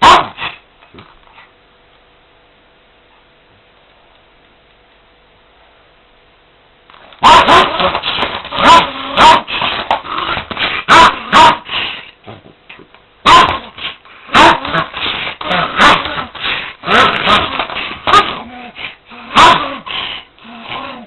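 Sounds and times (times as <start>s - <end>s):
dog barking and growling: 0.0s - 0.6s, 7.2s - 11.7s, 13.2s - 21.0s.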